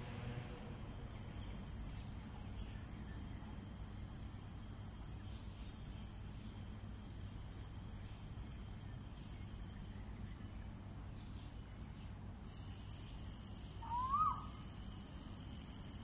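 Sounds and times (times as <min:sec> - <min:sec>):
low background hum: 0:00.0 - 0:16.0
faint high tones: 0:12.6 - 0:16.0
bird call rising then dropping: 0:13.8 - 0:14.5.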